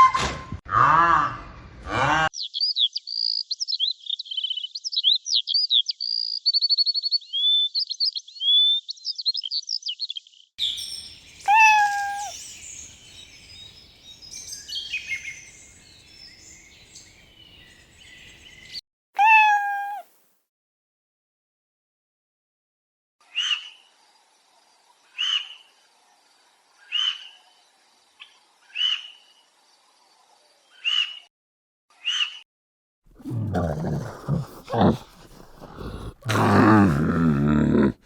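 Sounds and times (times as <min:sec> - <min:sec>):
songbird chirping and trilling: 0:02.4 - 0:20.0
cat meowing: 0:11.4 - 0:12.4, 0:19.2 - 0:20.1.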